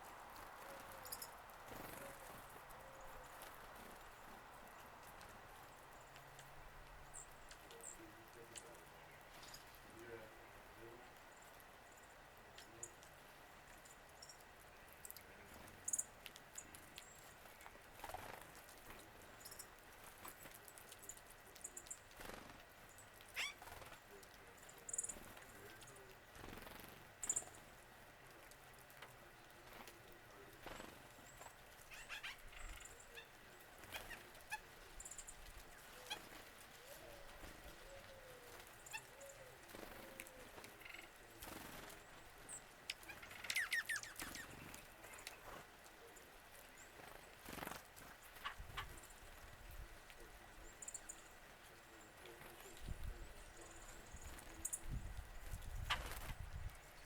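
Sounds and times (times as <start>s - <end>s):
faint wild birds calling: 0.0s - 57.0s.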